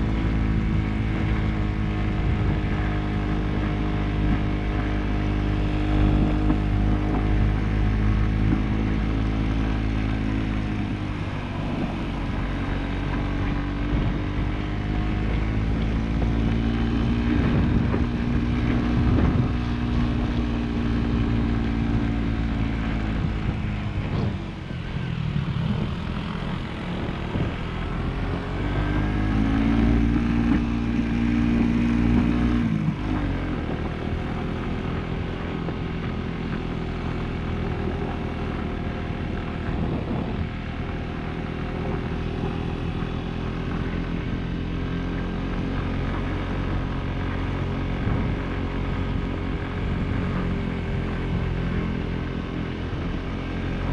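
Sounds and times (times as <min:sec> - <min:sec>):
motorcycle engine running: 0:00.0 - 0:53.9
wind rushing over microphone: 0:00.0 - 0:53.9.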